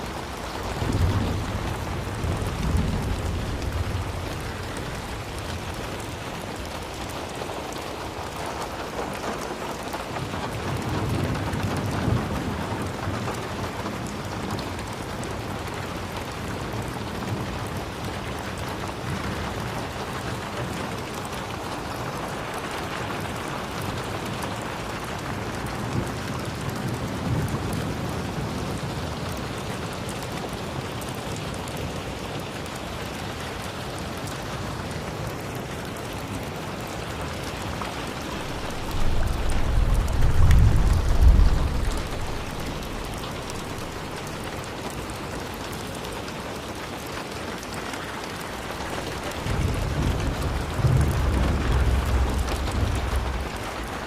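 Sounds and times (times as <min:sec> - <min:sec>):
distant thunder rumbling: 0:00.0 - 0:08.2, 0:37.5 - 0:44.8, 0:48.5 - 0:54.0
steady rain falling: 0:00.0 - 0:54.0.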